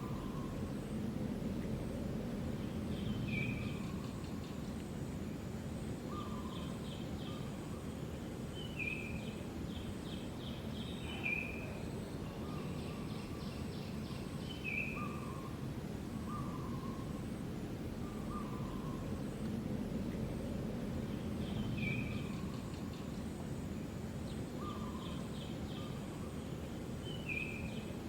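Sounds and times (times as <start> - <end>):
birds calling with trills: 0.0 - 0.7, 2.6 - 4.8, 6.1 - 7.9, 8.6 - 15.6, 16.2 - 17.3, 18.0 - 19.3, 21.0 - 23.3, 24.3 - 26.4, 27.0 - 28.0
outdoor background noise: 0.0 - 28.0.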